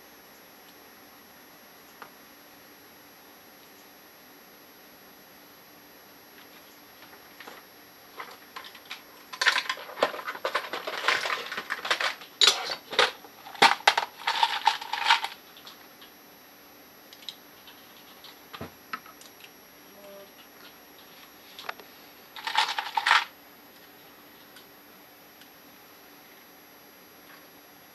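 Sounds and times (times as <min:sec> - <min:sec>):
small metal parts clinking: 0:08.2 - 0:15.8, 0:22.4 - 0:23.3.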